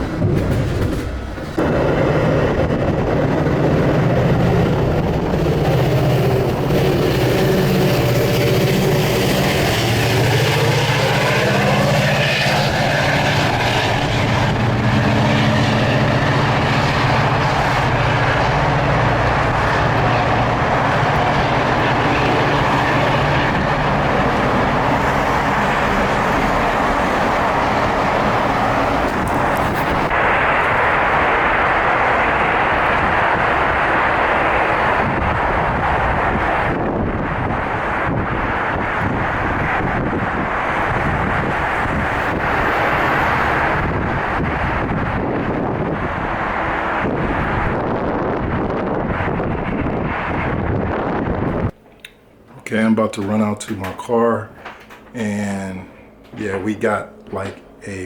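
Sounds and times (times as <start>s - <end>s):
rising train motor whine: 0.0s - 52.6s
metro train low hum: 0.0s - 58.0s.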